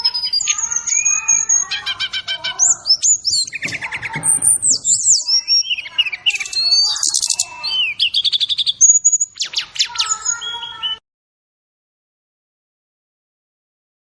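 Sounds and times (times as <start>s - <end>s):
bird singing whistles and trills: 0.0s - 11.0s.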